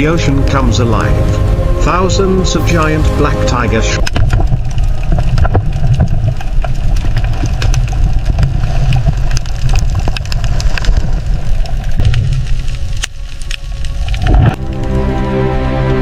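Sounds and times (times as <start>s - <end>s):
loud low rumble: 0.0s - 5.0s
sharp clicks and crackles: 4.0s - 14.8s.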